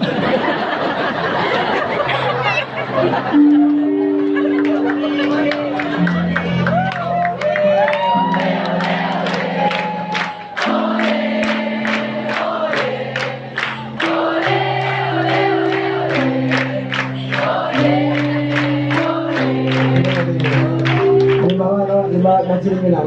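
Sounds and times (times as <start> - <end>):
held keyboard chords: 0.0 - 23.0
crowd singing along: 8.3 - 21.4.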